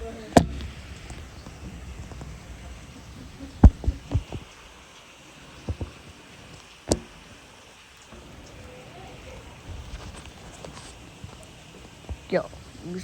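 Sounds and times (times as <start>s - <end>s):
sharp thumps: 0.0s - 4.8s, 5.6s - 7.4s
heavy rain falling: 0.0s - 13.0s.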